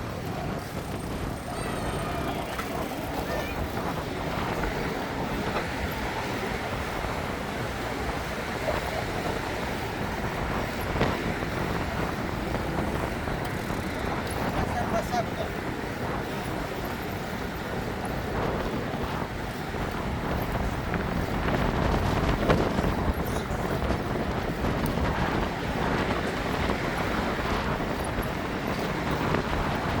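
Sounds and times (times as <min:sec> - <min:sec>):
city and waterfront noise: 0:00.0 - 0:30.0
wind rumbling on microphone: 0:00.0 - 0:30.0.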